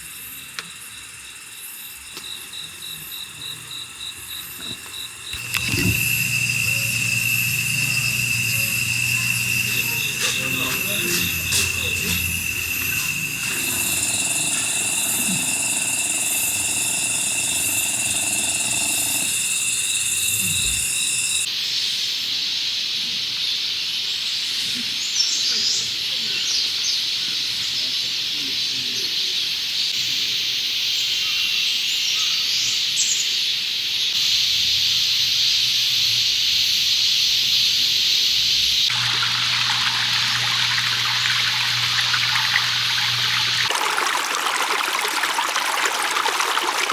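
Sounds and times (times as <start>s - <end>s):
high insect buzz: 3.0s - 21.5s
stream water trickling: 5.3s - 21.5s, 38.9s - 46.9s.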